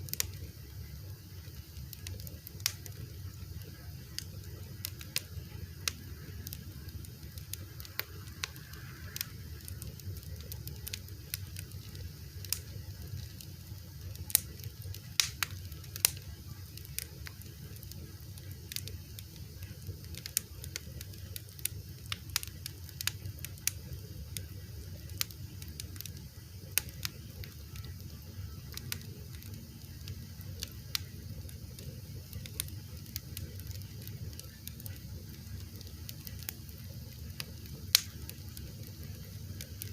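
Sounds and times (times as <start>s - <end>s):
fire popping and snapping: 0.0s - 39.9s
low rumble of flames: 0.0s - 39.9s
wood fire crackling: 0.0s - 39.9s.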